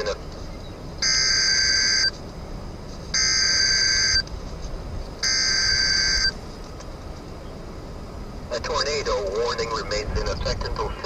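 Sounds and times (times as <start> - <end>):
harsh electronic buzzes: 1.0 - 2.1, 3.1 - 4.2, 5.2 - 6.4.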